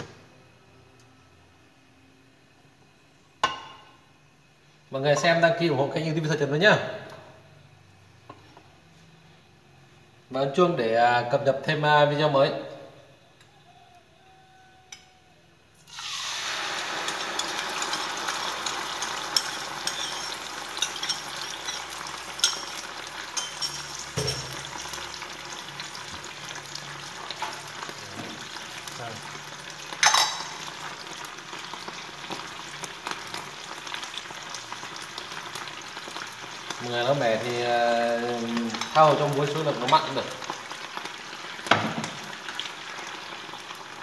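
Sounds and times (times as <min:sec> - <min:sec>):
fat sizzling in a frying pan: 0:15.8 - 0:44.0.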